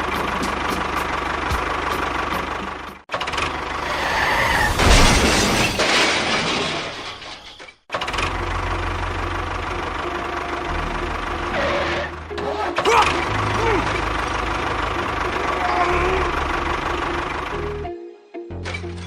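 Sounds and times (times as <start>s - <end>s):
small engine running: 13.1s - 17.8s.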